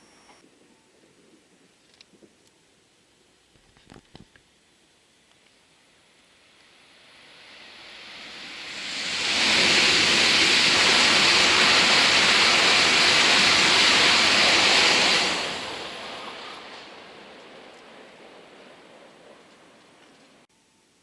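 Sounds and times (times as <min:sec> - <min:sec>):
high-speed train rushing past: 0:05.9 - 0:20.5.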